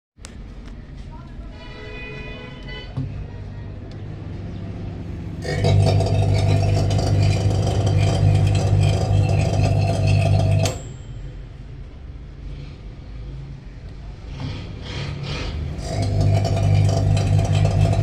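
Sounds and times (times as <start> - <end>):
microwave oven humming: 5.4 - 11.2, 15.8 - 18.0.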